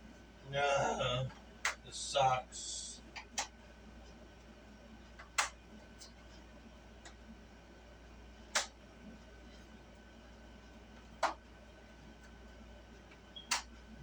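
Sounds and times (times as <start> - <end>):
faint steady low hum: 0.0 - 14.0
sharp clicks of board handled: 8.5 - 8.7.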